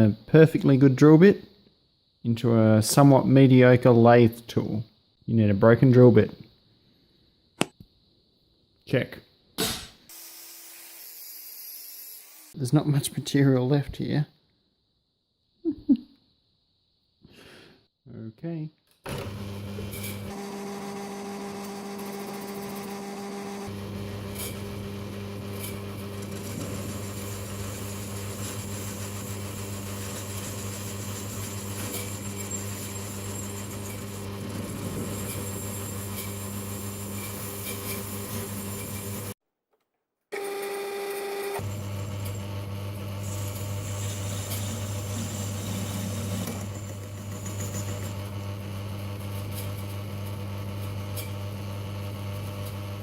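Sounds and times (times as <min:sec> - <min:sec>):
lathe motor hum: 0:19.1 - 0:39.3, 0:41.6 - 0:49.3
tool cutting aluminium: 0:19.8 - 0:39.4, 0:43.2 - 0:48.4.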